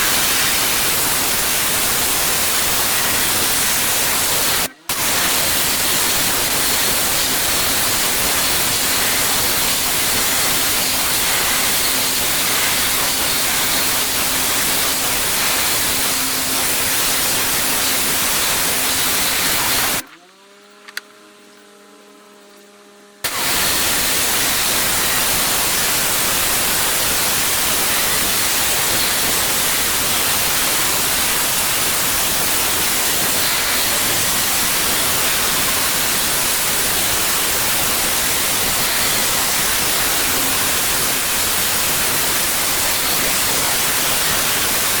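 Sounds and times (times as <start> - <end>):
pressure washer spraying: 0.0 - 20.0, 23.3 - 45.0
steady hum: 0.0 - 20.1.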